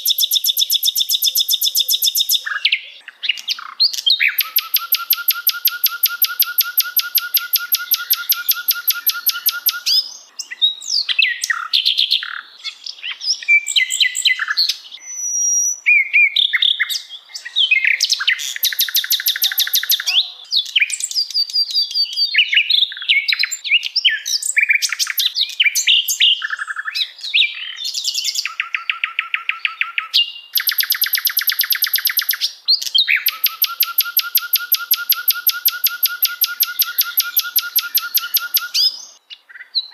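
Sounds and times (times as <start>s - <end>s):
bird chirps and whistles: 0.0s - 2.8s, 3.4s - 10.2s, 13.4s - 17.0s, 17.8s - 20.1s, 20.7s - 39.2s
songbird chattering trills: 0.0s - 10.6s, 18.2s - 20.2s, 30.6s - 39.2s.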